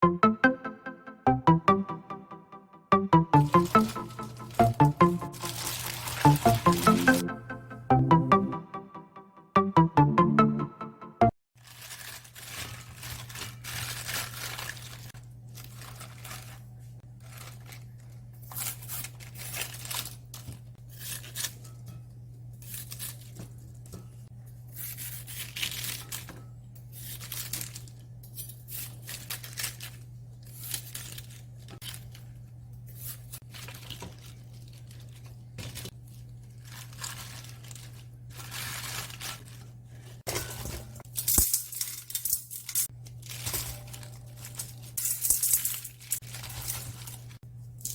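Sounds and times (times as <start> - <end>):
cabbage leaves tearing and rustling: 5.4 - 7.0, 11.6 - 21.7, 22.6 - 23.8, 24.7 - 28.0, 28.6 - 32.2, 32.9 - 40.2, 43.1 - 45.0, 45.7 - 47.9.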